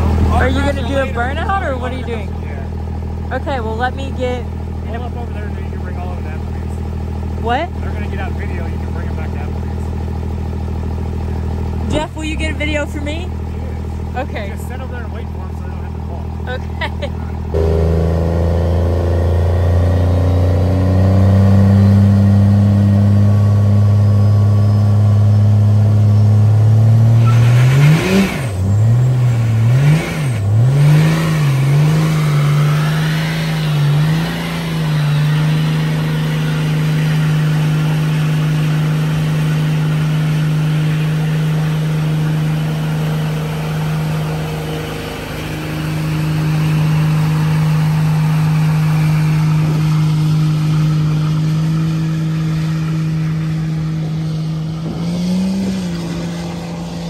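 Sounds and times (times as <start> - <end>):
diesel engine revving hard: 0.0 - 57.0.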